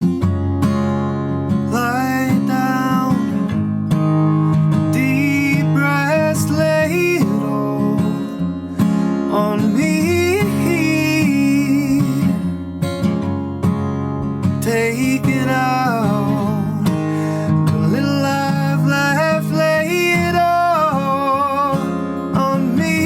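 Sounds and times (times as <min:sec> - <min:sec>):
acoustic guitar strumming: 0:00.0 - 0:23.0
person singing: 0:01.7 - 0:03.5, 0:04.9 - 0:08.6, 0:09.3 - 0:12.6, 0:14.6 - 0:23.0.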